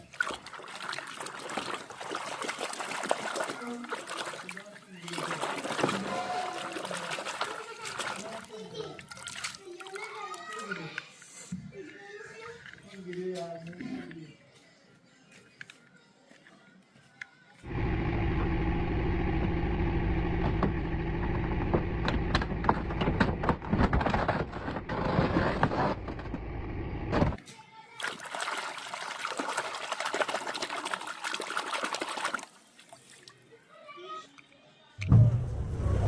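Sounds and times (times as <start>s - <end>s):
water running and splashing: 0.0s - 10.9s, 28.0s - 33.6s
low steady hum: 17.7s - 23.7s.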